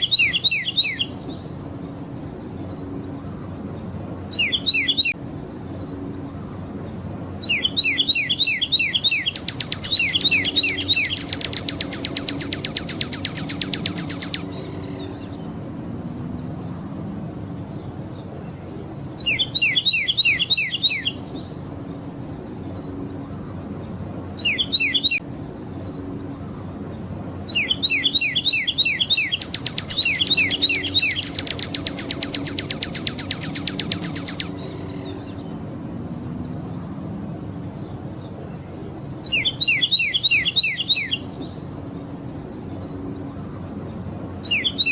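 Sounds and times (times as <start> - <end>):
cardinal whistling song: 7.5 - 15.2, 27.6 - 35.2.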